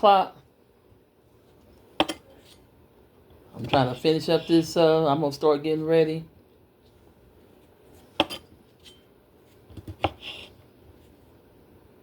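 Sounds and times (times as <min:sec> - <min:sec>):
kitchenware clinking: 0:02.0 - 0:02.6, 0:08.1 - 0:09.1
faint handling sounds: 0:06.7 - 0:11.5.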